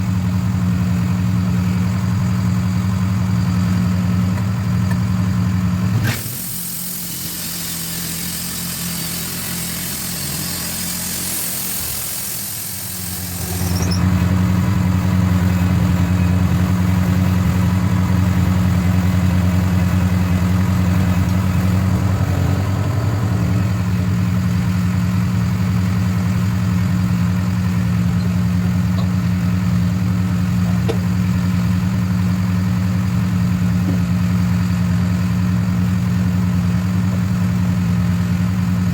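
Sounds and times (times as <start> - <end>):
sawmill engine humming: 0.0 - 38.9
loud hiss: 6.0 - 14.0, 18.2 - 25.1.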